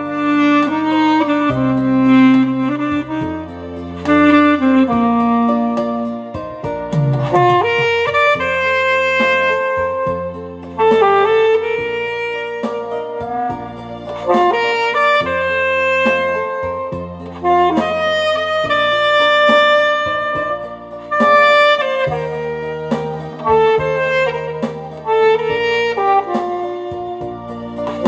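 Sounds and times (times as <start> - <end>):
bass and light beat: 0.0 - 28.0
saxophone slow melody: 0.0 - 28.0.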